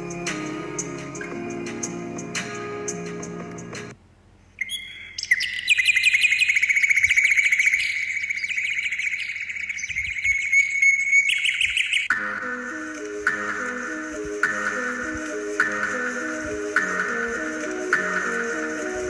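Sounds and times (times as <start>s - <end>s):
background music: 0.0s - 4.0s, 12.1s - 19.0s
bird trilling: 4.6s - 12.1s.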